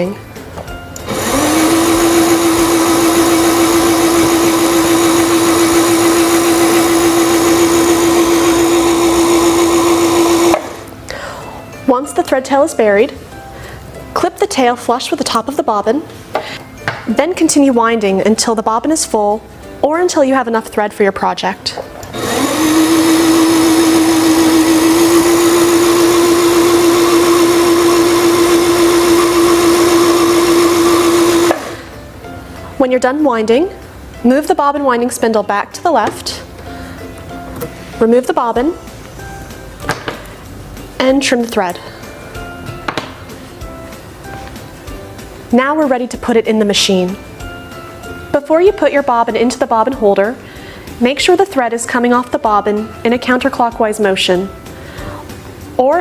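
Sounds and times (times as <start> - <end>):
sewing machine motor humming: 1.1 - 10.8, 22.2 - 31.9.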